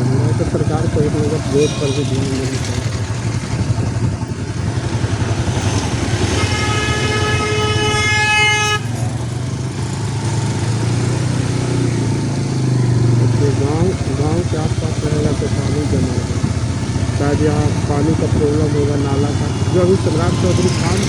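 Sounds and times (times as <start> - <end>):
motorcycle engine running: 0.0 - 21.0
vehicle horn long note: 1.5 - 3.0, 5.1 - 9.2.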